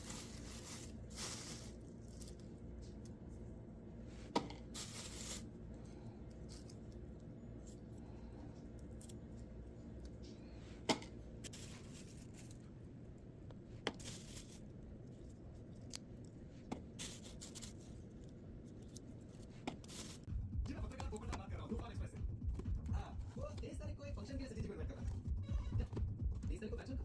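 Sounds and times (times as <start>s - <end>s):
plastic crinkling: 0.0s - 3.0s, 13.9s - 20.3s
faint low hum: 0.0s - 27.0s.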